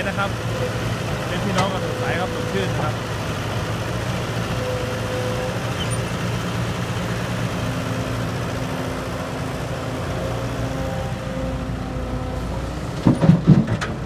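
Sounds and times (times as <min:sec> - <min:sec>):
diesel engine humming: 0:00.0 - 0:14.0.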